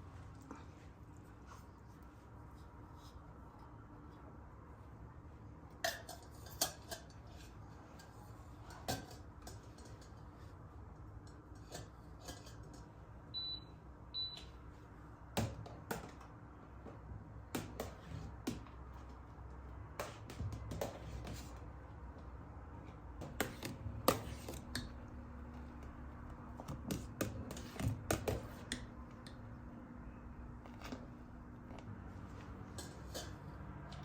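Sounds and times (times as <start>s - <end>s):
dishes and utensils clinking: 5.7s - 10.4s.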